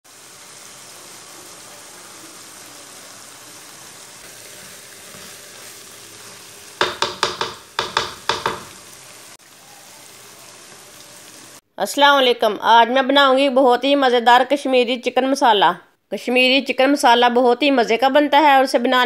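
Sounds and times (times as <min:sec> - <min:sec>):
curry sizzling in oil: 0:00.0 - 0:11.6.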